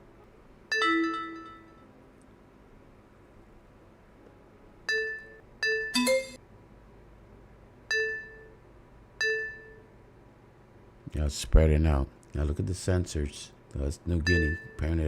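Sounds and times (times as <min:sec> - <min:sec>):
electronic chime dings: 0:04.9 - 0:06.4, 0:07.9 - 0:08.6, 0:09.2 - 0:09.9, 0:14.3 - 0:15.0.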